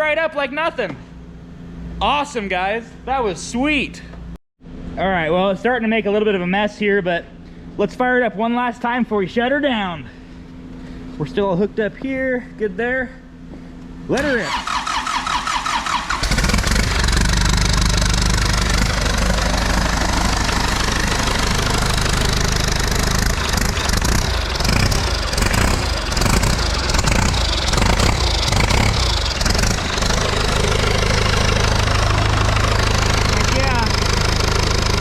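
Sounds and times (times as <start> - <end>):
diesel engine starter cranking: 14.2 - 35.0
diesel engine idling: 14.6 - 35.0.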